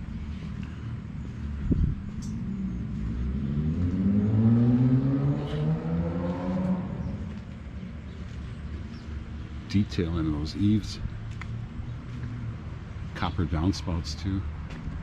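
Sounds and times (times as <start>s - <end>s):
vehicle engine accelerating: 1.6s - 9.1s.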